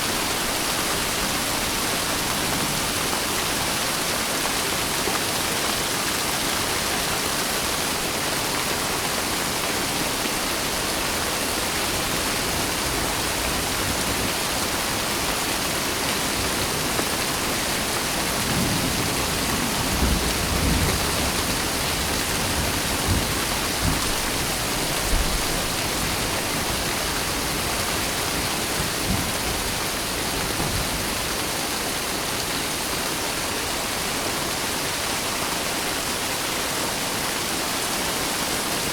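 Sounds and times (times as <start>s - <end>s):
steady rain: 0.0s - 38.9s
low rumbles of thunder: 18.3s - 26.3s.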